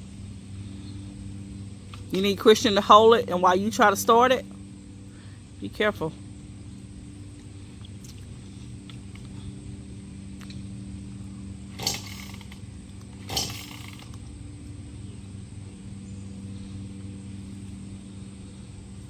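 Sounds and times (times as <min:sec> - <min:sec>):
steady low hum: 0:00.0 - 0:19.0
chainsaw starter cord pull: 0:11.7 - 0:14.3.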